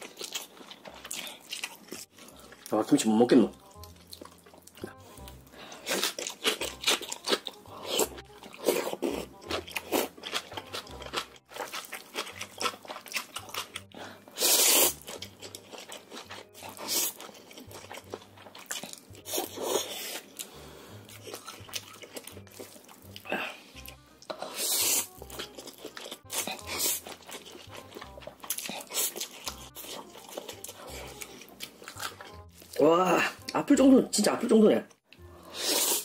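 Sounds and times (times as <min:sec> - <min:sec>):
crisp crunching and chewing: 0:00.0 - 0:03.0, 0:03.7 - 0:20.5, 0:21.1 - 0:32.9
noodle slurp: 0:14.3 - 0:15.2, 0:24.3 - 0:25.1, 0:35.5 - 0:36.0.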